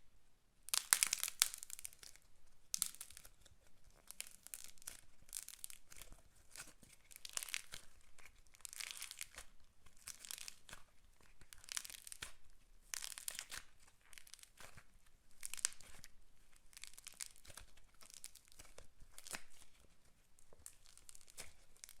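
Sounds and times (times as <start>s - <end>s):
slime squished by hand: 0.7s - 10.9s, 16.7s - 19.8s, 20.6s - 22.0s.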